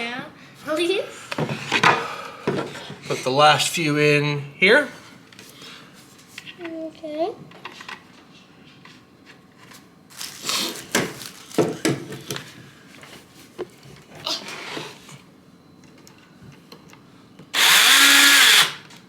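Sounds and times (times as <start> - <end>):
power drill whining: 17.6 - 18.9.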